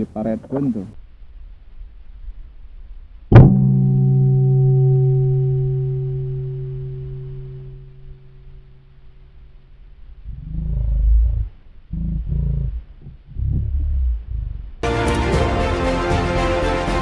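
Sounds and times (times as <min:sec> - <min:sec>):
gong ringing: 0:03.4 - 0:08.8, 0:14.8 - 0:17.0.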